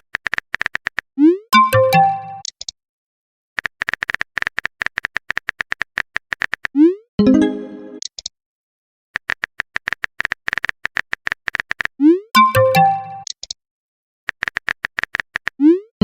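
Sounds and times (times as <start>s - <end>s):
message chime: 1.6s - 2.4s, 7.2s - 8.0s, 12.4s - 13.2s.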